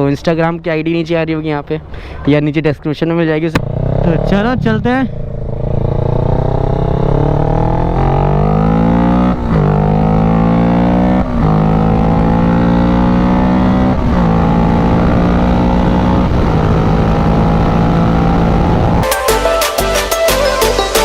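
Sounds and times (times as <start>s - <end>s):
road and wind rumble: 0.0s - 19.0s
motorcycle engine accelerating: 3.5s - 19.0s.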